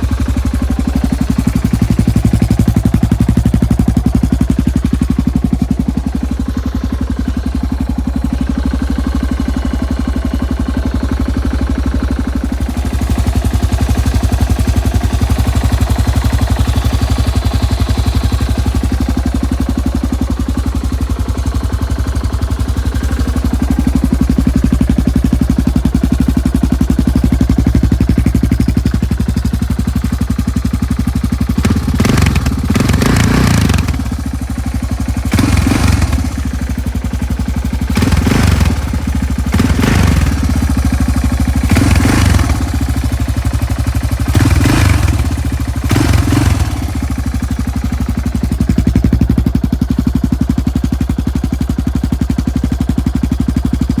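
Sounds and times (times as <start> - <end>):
motorcycle engine idling: 0.0 - 54.0
engine revving with throttle: 31.6 - 34.2, 35.3 - 36.4, 37.9 - 40.7, 41.6 - 42.9, 44.3 - 47.1.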